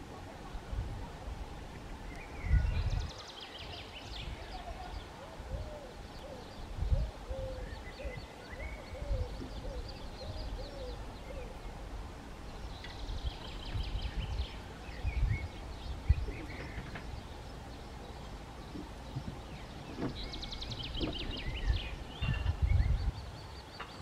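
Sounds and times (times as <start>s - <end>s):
small birds chirping: 0.2s - 24.0s
bird hooting: 4.8s - 11.6s.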